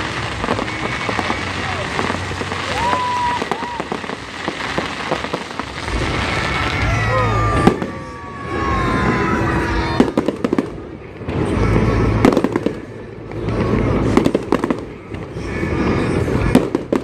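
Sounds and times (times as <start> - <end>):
whistling firework shells: 0.0 - 8.3
low rumble: 0.0 - 12.2
firework bangs: 0.0 - 17.0
firework crackling: 0.0 - 17.0.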